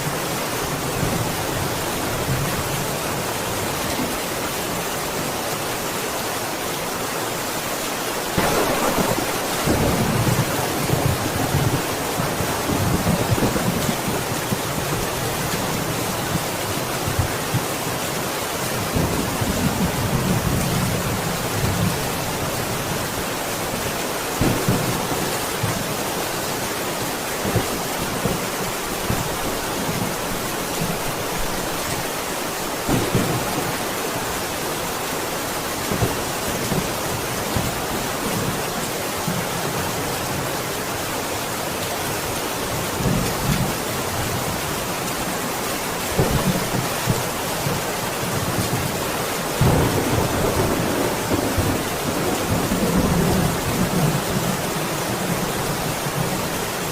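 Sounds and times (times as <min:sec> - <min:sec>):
heavy rain: 0:00.0 - 0:56.9
thunder rumbling: 0:08.3 - 0:15.4, 0:32.8 - 0:33.9, 0:49.6 - 0:54.6.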